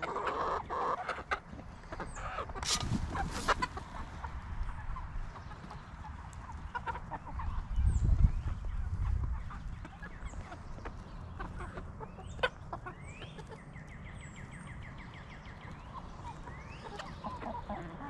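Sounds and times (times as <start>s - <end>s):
young chickens clucking: 0.0s - 18.0s
brief rustles: 2.6s - 3.7s.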